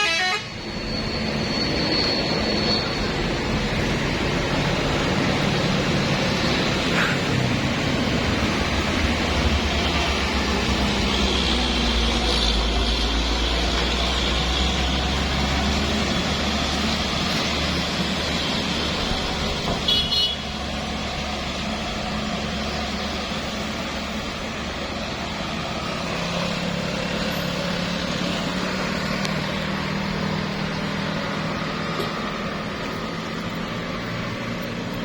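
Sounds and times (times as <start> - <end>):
vehicle horn blast: 0.0 - 0.6, 19.8 - 20.5
heavy vehicle engine rumble: 0.0 - 35.0.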